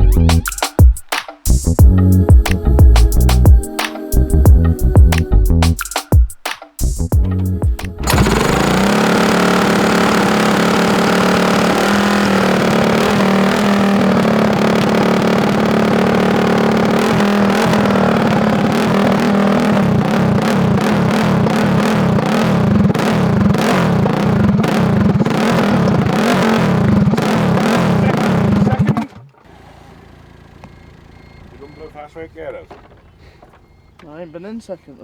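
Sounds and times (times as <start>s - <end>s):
motorcycle engine revving: 7.4s - 34.6s.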